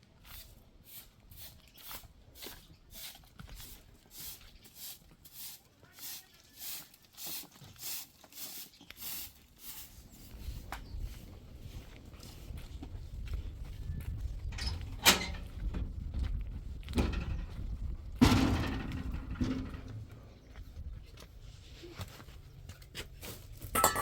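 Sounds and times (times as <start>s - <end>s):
broom sweeping: 0.2s - 11.9s.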